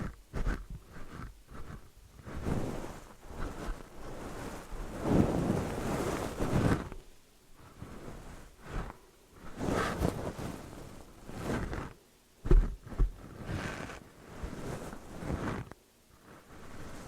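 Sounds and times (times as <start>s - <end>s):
rustling and rubbing: 0.0s - 17.0s
sharp thumps: 12.4s - 13.2s.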